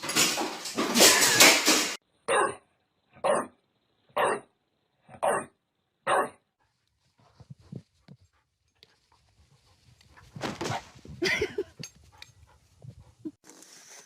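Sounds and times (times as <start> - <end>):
dog barking: 2.3 - 3.6, 4.2 - 4.5, 5.1 - 6.4.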